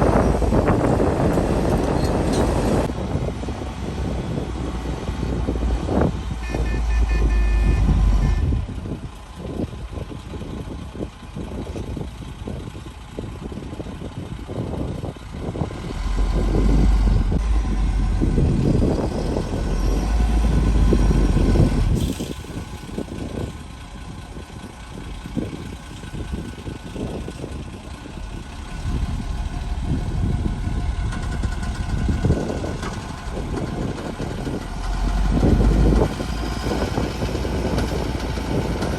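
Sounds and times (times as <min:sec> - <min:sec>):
diesel engine rumble: 0:00.0 - 0:38.9
metal clanks and knocks: 0:28.3 - 0:36.2.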